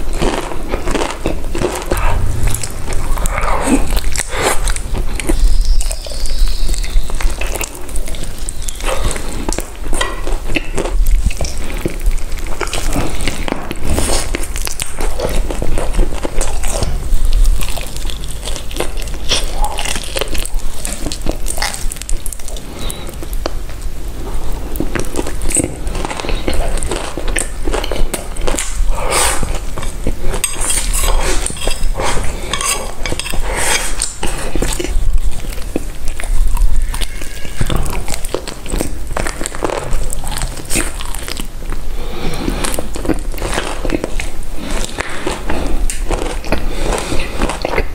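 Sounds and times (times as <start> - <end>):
biting and chewing crunches: 0.0 - 47.9
cutlery clinking on dishes: 30.3 - 34.8.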